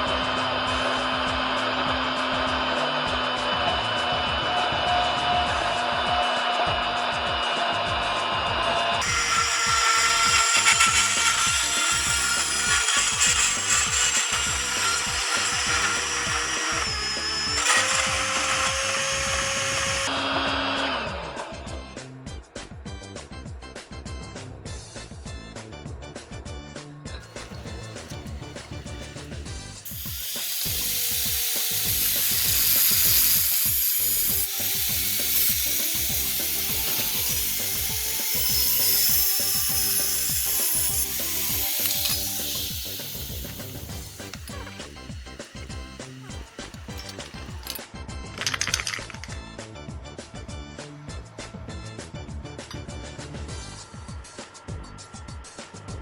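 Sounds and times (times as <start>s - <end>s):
background music with steady beat: 0.0s - 9.0s, 20.5s - 29.9s, 31.3s - 56.0s
power tool whining: 9.0s - 20.7s, 27.2s - 49.2s.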